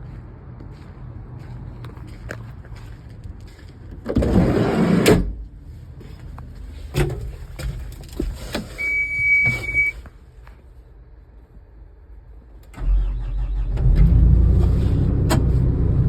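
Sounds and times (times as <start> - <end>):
knocks and clunks: 6.8 - 10.0
high electronic beep: 8.8 - 10.0.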